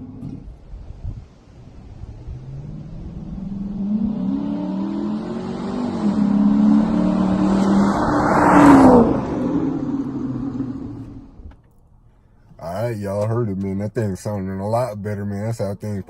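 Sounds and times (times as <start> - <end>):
car engine accelerating hard: 1.6 - 11.5.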